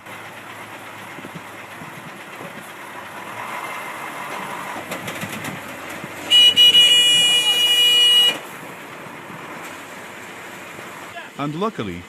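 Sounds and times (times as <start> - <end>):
heavy vehicle engine rumbling: 0.0 - 12.0
horn blast: 6.3 - 8.5.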